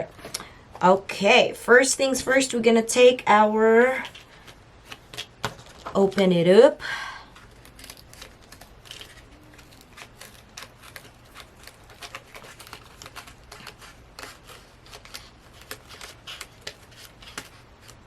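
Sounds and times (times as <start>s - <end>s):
plastic packaging crinkling: 7.2s - 18.0s.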